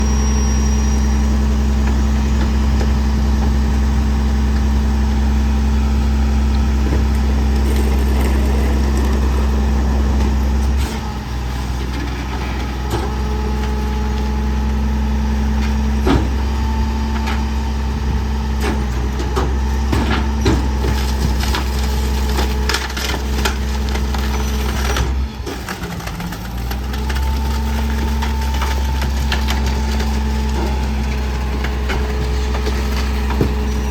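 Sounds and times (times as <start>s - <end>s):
garbage truck engine running: 0.0s - 33.9s
compactor crushing trash: 1.8s - 33.9s
wood cracking and splintering: 20.8s - 33.9s.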